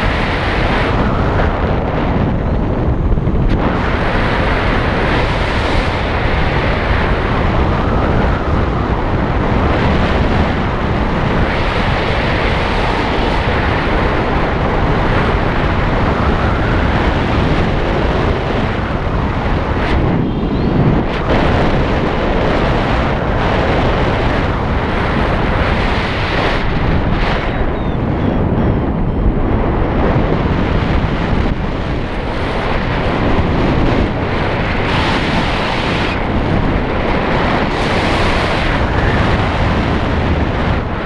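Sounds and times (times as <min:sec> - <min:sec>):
wind rushing over microphone: 0:00.0 - 0:41.0.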